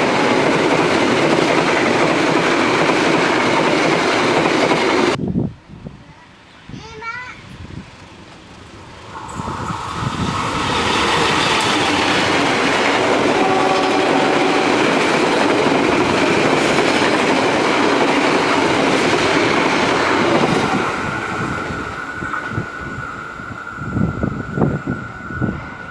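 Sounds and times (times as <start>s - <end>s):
train wheels clattering on rails: 0.0s - 5.2s, 8.0s - 25.9s
steady high tone: 9.0s - 19.2s.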